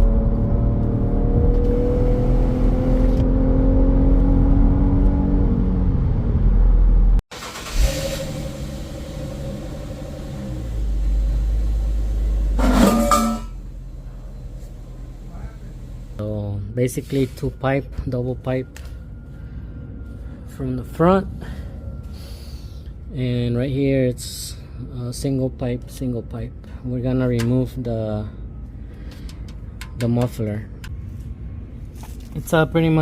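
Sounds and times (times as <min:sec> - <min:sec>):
quieter steady engine sound: 0:07.4 - 0:33.0
car exhaust note: 0:08.1 - 0:16.2.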